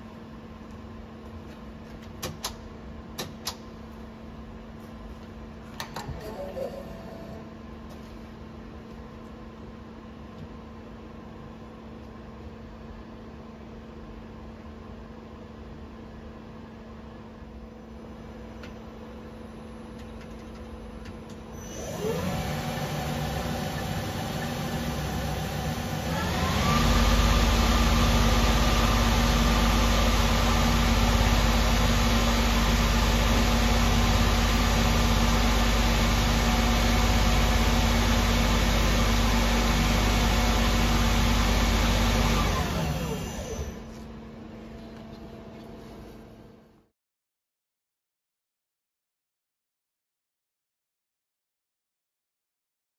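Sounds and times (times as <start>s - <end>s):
lathe low hum: 21.4s - 46.7s
motor spinning up whine: 21.5s - 44.0s
lathe running with whine: 21.7s - 43.8s.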